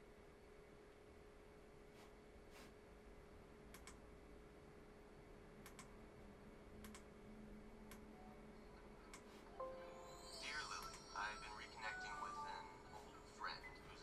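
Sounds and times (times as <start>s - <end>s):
faint sharp clicks: 3.7s - 4.0s, 5.6s - 5.9s, 6.8s - 7.1s.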